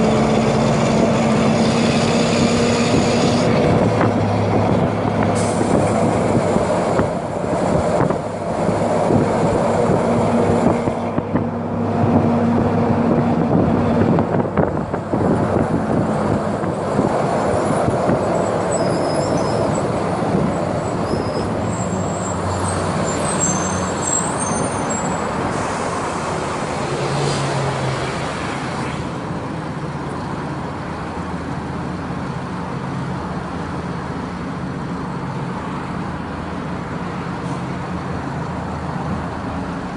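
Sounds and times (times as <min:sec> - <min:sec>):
bus diesel engine running: 0:00.0 - 0:39.9
brief high squeaks: 0:18.6 - 0:19.9, 0:20.9 - 0:25.8.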